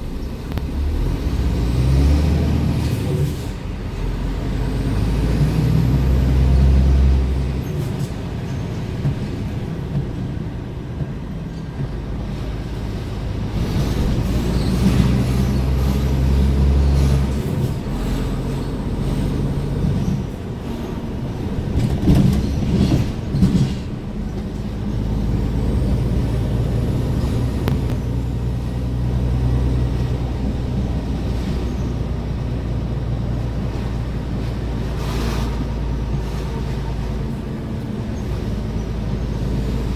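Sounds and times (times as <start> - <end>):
truck diesel engine running: 12.6 - 39.9.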